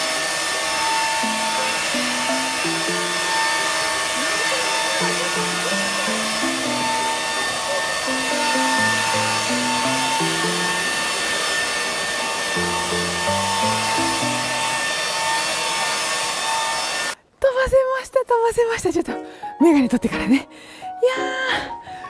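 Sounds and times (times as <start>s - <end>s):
leaf blowers running: 0.0s - 17.2s
background music melody: 0.5s - 16.0s, 18.7s - 22.0s.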